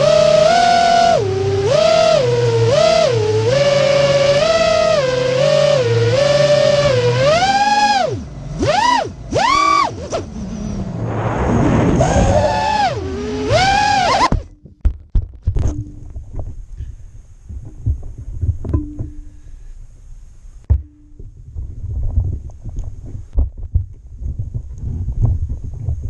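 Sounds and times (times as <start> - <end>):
drone motors whining: 0.0 - 14.6
knocks and thumps: 14.1 - 16.8, 17.5 - 19.3, 20.6 - 26.0.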